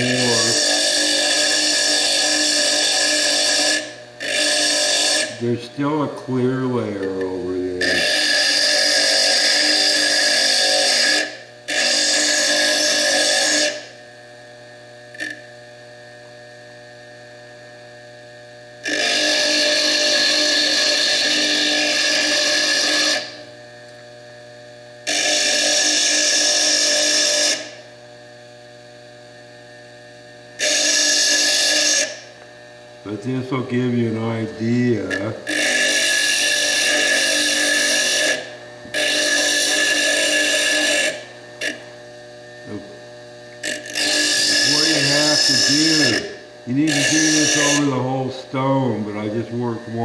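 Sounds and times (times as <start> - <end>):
stone grinding on spinning disc: 0.0 - 13.9, 18.8 - 23.5, 25.1 - 27.8, 30.6 - 32.4, 33.1 - 42.0, 43.5 - 50.0
bench lathe humming: 0.0 - 50.0.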